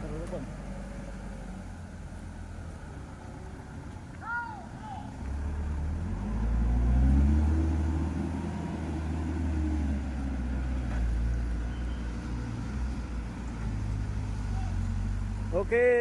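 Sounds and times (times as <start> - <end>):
diesel truck engine revving: 5.2 - 15.9.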